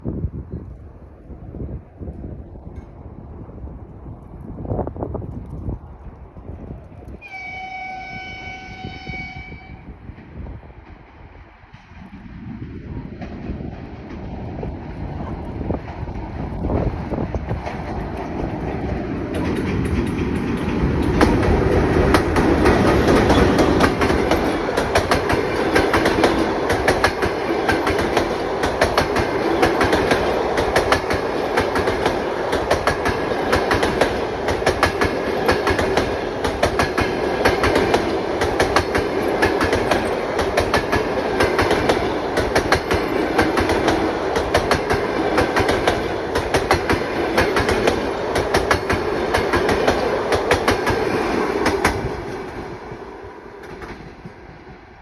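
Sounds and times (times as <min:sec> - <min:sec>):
train wheels clattering: 0:13.2 - 0:54.4.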